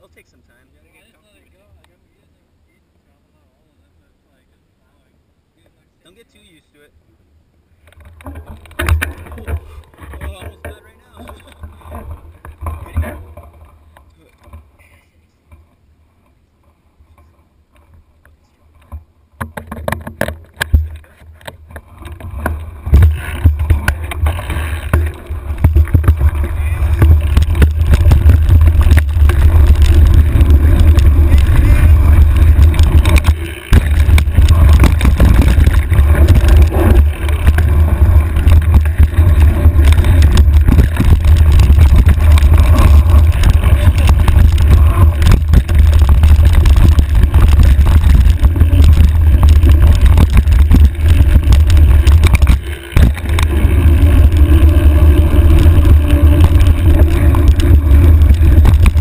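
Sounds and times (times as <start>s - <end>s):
bike clattering over ground: 7.9s - 14.7s, 18.8s - 59.0s
wind buffeting microphone: 21.7s - 59.0s.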